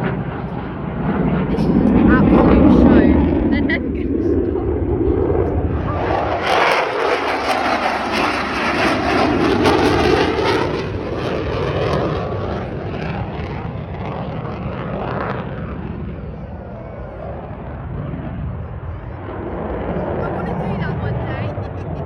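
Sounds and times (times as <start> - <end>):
fighter jet flying past: 0.0 - 22.0.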